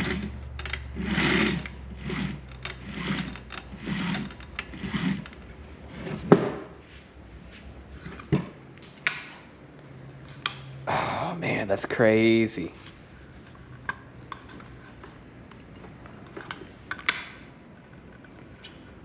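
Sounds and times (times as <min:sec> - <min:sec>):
electric motor humming in surges: 0:00.0 - 0:06.4.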